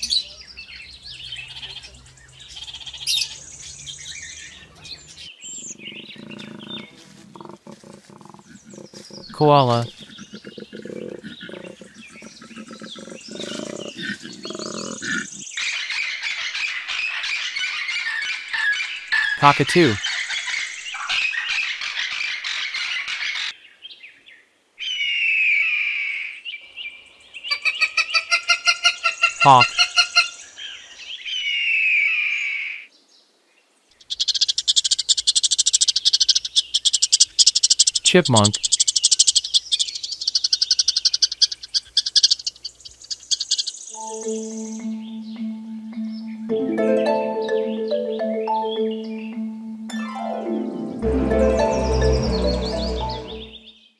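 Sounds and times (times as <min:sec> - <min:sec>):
koala bellowing grunts: 0:05.6 - 0:15.4
chipmunk chipping calls: 0:34.0 - 0:44.8.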